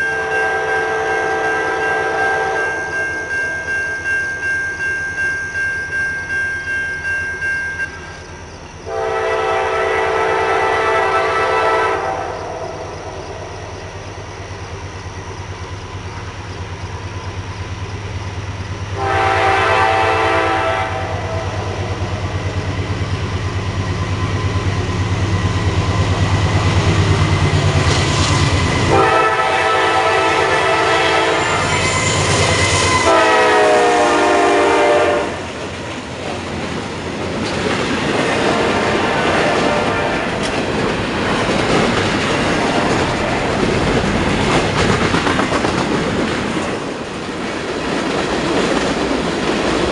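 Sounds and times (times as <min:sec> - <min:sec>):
locomotive horn blasts: 0:00.0 - 0:03.0, 0:08.9 - 0:12.9, 0:19.0 - 0:21.9, 0:28.9 - 0:35.5, 0:38.5 - 0:40.4
wheels clicking over rail joints: 0:35.5 - 0:38.6, 0:40.3 - 0:49.9.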